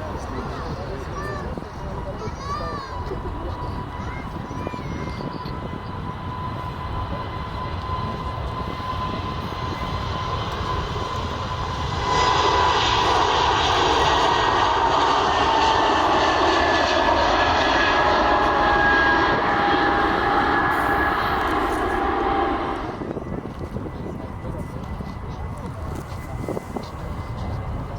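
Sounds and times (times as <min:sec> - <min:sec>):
airliner engines rumbling: 0:00.0 - 0:27.9
high engine whine: 0:00.0 - 0:27.9.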